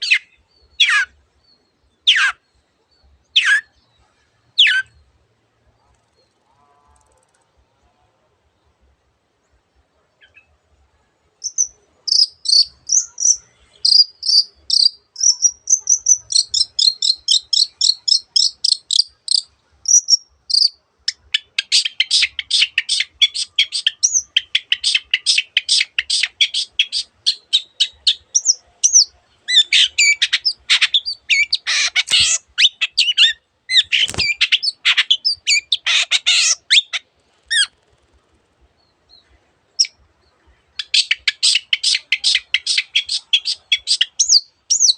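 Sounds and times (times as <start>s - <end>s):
bird singing whistled notes: 11.4s - 37.8s, 40.8s - 44.9s
bird harsh scratchy calls: 21.6s - 37.8s.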